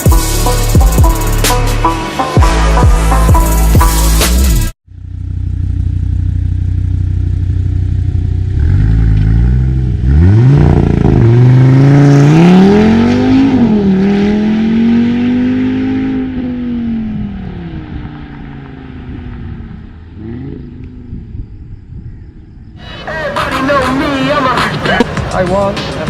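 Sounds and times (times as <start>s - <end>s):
car engine accelerating hard: 5.8s - 21.5s.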